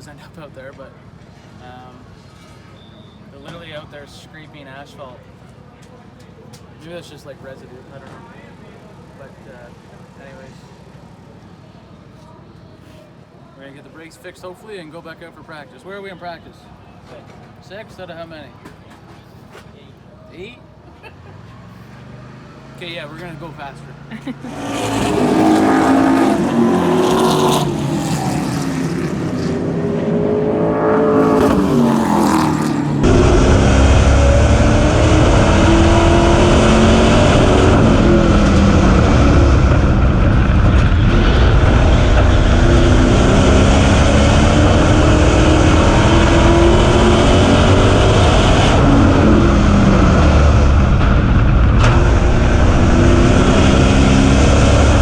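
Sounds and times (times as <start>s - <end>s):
race car engines passing: 20.4s - 55.0s.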